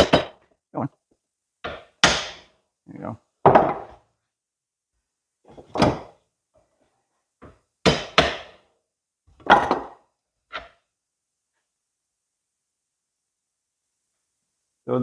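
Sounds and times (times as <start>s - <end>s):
metal parts knocking and thunking: 5.6s - 6.1s.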